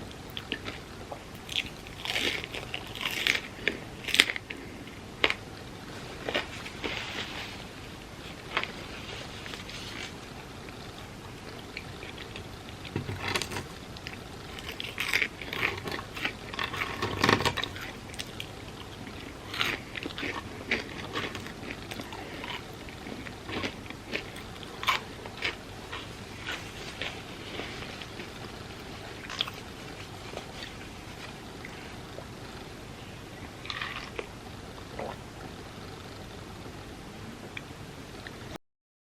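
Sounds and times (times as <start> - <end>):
chewing: 0.3 - 7.5, 8.3 - 32.7, 33.3 - 35.2
crunching bites of fried food: 1.4 - 4.5, 13.2 - 28.3.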